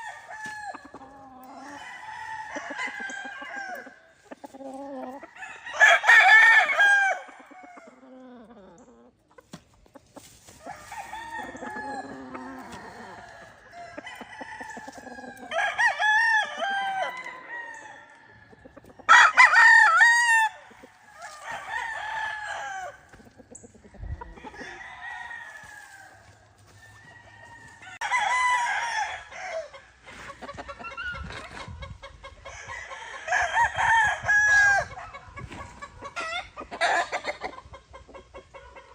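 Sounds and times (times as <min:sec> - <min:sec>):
roosters crowing: 0:00.0 - 0:08.8, 0:10.2 - 0:37.5
birds clucking: 0:07.3 - 0:17.2.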